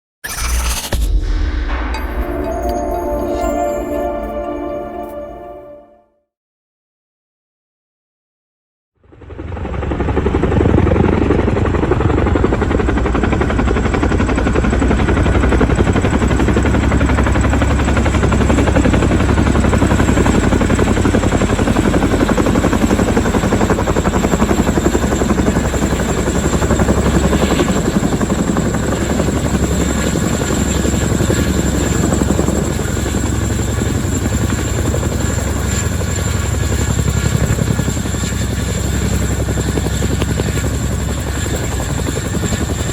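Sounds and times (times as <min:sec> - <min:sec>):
helicopter rotor noise: 0:09.2 - 0:42.9.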